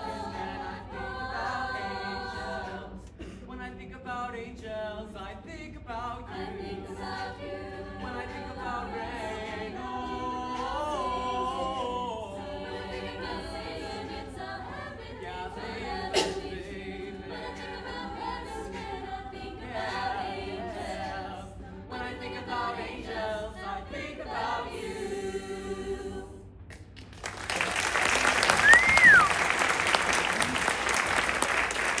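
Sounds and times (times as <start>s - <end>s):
choir singing a cappella: 0.0s - 26.7s
audience applause: 27.0s - 32.0s
person whistling: 28.6s - 29.4s.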